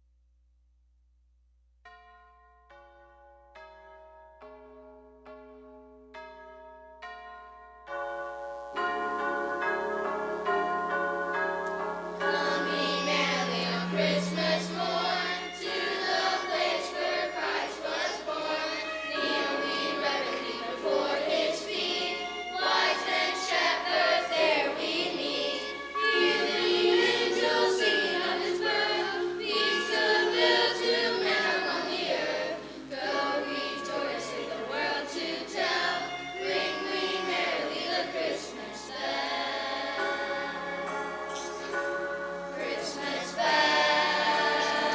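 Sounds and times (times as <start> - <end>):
choir singing: 9.0 - 44.9.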